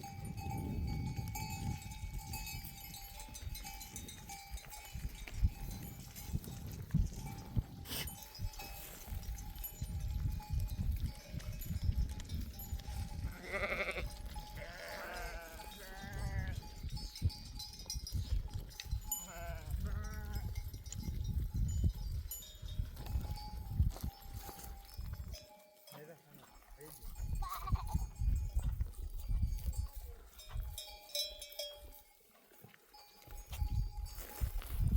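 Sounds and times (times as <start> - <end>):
sheep bells clinking: 0.0 - 34.9
sheep bleating: 13.3 - 16.6, 19.2 - 20.4.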